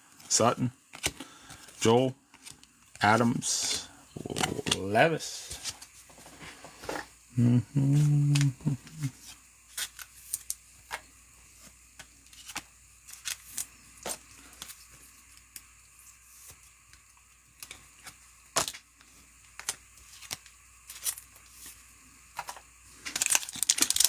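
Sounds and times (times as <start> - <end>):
trading cards flipping: 0.9 - 4.9, 7.9 - 11.1, 12.0 - 15.7, 17.6 - 21.8, 22.4 - 24.0.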